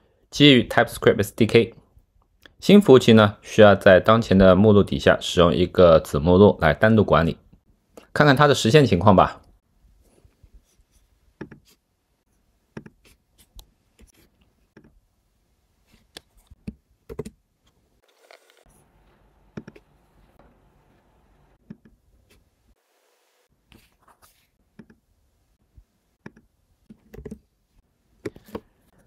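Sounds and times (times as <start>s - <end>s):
faint clicks and taps: 19.5s - 19.9s.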